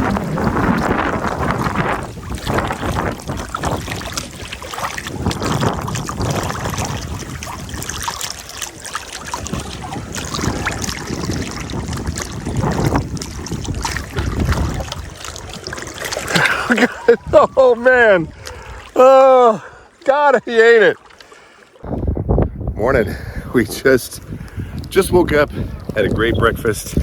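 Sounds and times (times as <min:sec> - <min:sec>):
wind buffeting microphone: 0:00.0 - 0:19.0, 0:21.8 - 0:27.0
boat knocks and splashes: 0:00.0 - 0:22.2
river water moving: 0:00.0 - 0:26.2.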